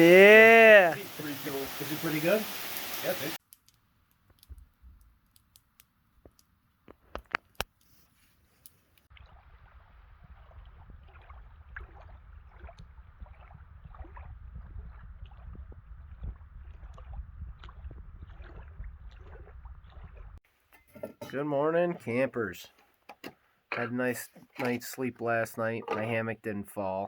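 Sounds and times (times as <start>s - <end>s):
rain pattering on a tarp: 0.0s - 3.4s
low rumble: 9.2s - 20.4s.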